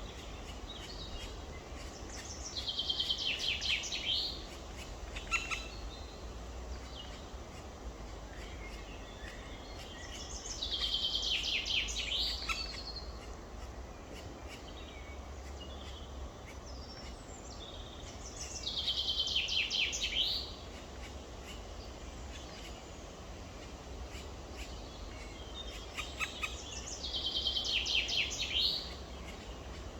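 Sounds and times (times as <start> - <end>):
woodpecker chicks calling: 0.1 - 5.8, 24.1 - 29.9.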